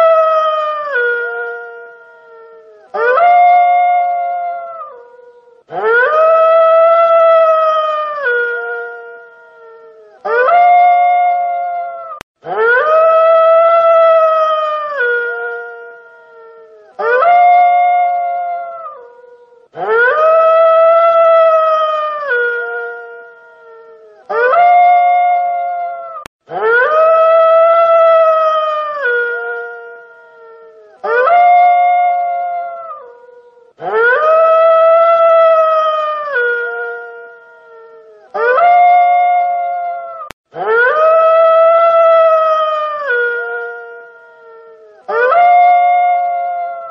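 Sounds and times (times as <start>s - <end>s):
wolf howling: 0.0s - 46.9s.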